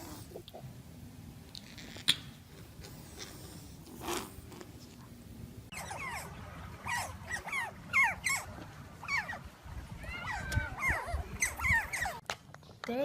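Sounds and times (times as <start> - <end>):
dog whimpering: 5.7 - 9.4, 10.1 - 12.2.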